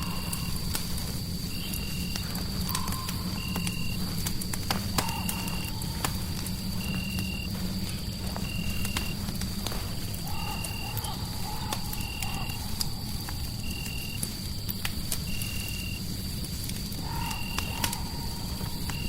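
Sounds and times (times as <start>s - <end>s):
low rumble of noise: 0.0s - 11.6s
fire crackling and popping: 0.0s - 19.0s.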